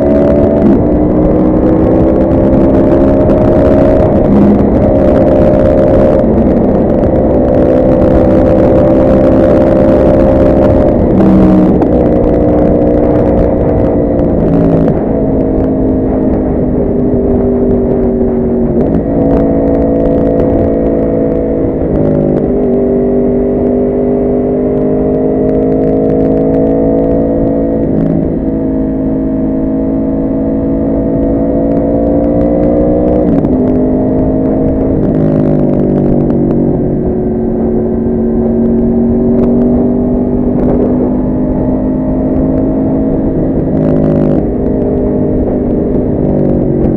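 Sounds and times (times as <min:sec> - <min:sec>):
motorcycle engine shifting gears: 0:00.0 - 0:46.9.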